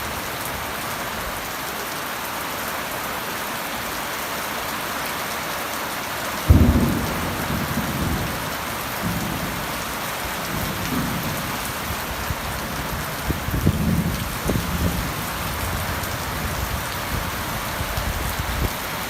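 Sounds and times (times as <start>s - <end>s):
steady rain: 0.0s - 19.0s
thunder rumbling: 6.5s - 18.8s.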